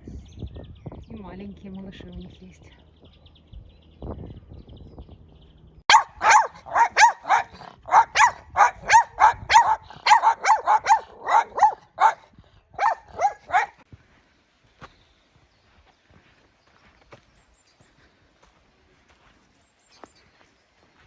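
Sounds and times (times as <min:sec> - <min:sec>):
dog barking: 0:05.9 - 0:13.8.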